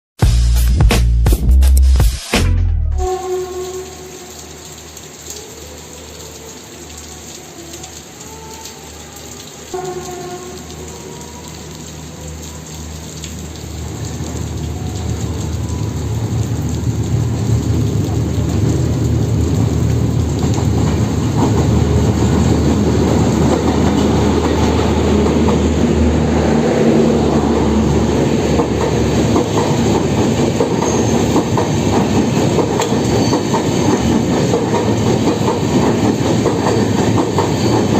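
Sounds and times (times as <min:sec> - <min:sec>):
train horn: 0:03.0 - 0:04.8, 0:07.4 - 0:12.8.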